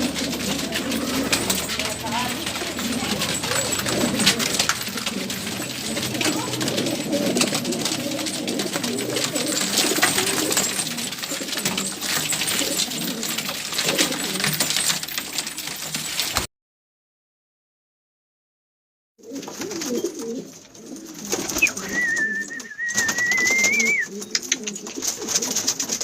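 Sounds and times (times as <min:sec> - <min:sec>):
pigeons cooing: 0:00.0 - 0:15.8, 0:19.2 - 0:26.0
sharp clicks and taps: 0:24.2 - 0:24.8.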